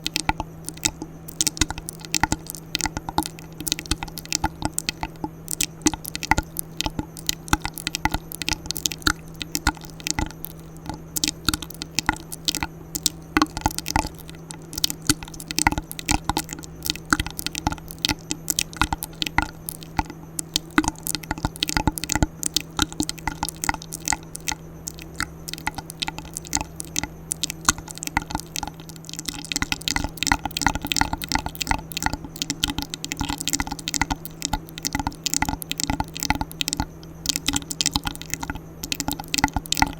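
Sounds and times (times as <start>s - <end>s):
faint steady hum: 0.0s - 39.9s
wet mouth clicks and smacks: 0.0s - 39.9s.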